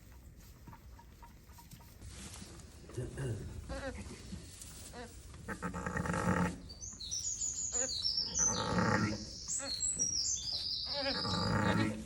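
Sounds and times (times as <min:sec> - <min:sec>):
birds singing: 0:06.5 - 0:12.0
sheep bleating: 0:10.9 - 0:12.0.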